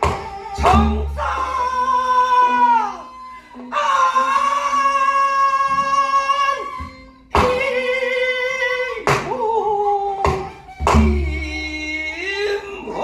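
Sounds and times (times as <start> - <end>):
person singing folk song: 0.0 - 13.0
sharp percussive stroke: 10.2 - 11.6.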